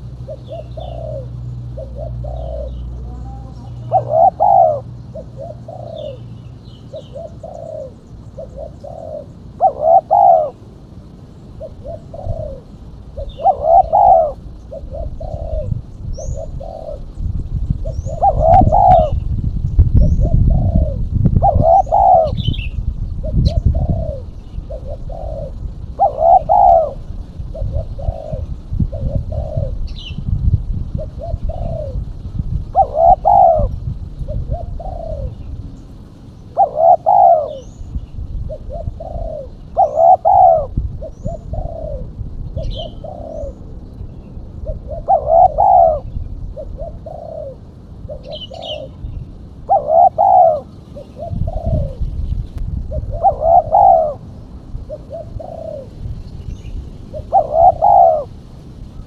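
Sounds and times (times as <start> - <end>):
dove cooing: 0.0 - 59.0
small birds chirping: 0.0 - 59.0
low rumble: 11.8 - 36.6, 50.6 - 57.6.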